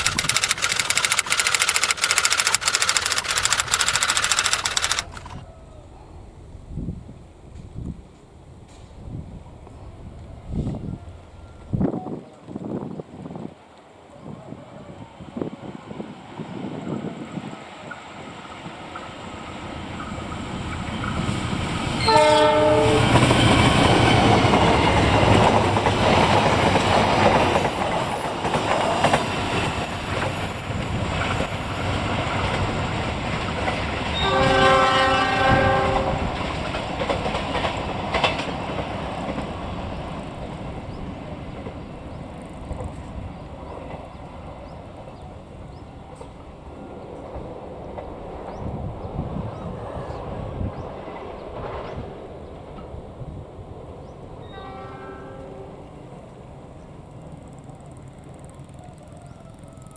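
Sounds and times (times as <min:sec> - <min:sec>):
train passing: 0:00.0 - 0:59.9
train horn: 0:22.0 - 0:23.6, 0:34.1 - 0:36.5, 0:54.4 - 0:56.1.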